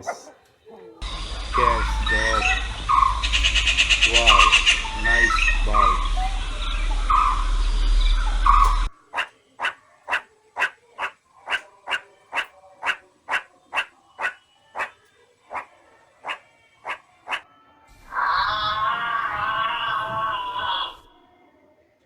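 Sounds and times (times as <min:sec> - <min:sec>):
dog barking: 0:00.0 - 0:17.4
birds chirping: 0:00.0 - 0:21.2
hum and noise: 0:01.0 - 0:08.9.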